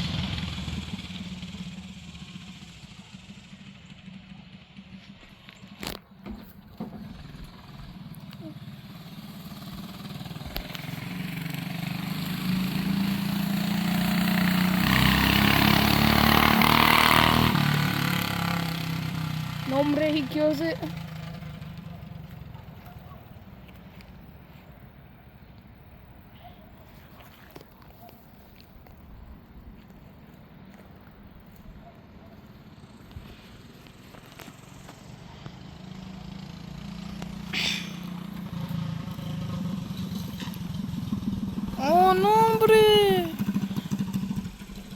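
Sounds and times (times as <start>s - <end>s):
small engine at high revs: 7.2s - 21.7s, 34.8s - 44.9s
tyre spinning hiss: 37.5s - 38.3s.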